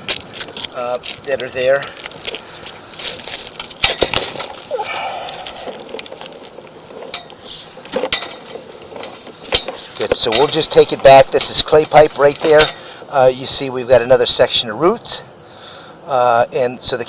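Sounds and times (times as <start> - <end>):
cable clinking and scraping in drain: 5.4 - 12.8.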